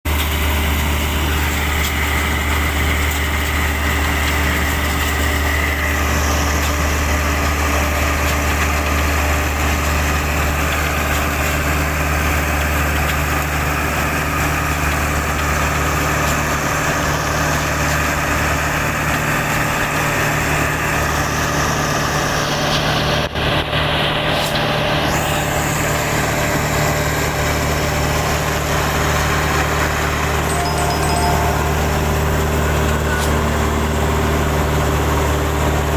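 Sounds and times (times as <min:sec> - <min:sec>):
tractor engine droning: 0:00.1 - 0:35.9.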